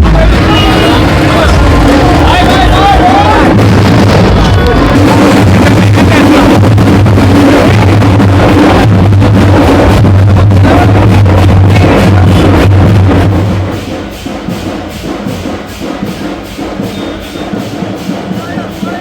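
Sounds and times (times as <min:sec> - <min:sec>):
heavy low drone: 0:00.0 - 0:13.8
loud music with drum beats: 0:00.0 - 0:19.0.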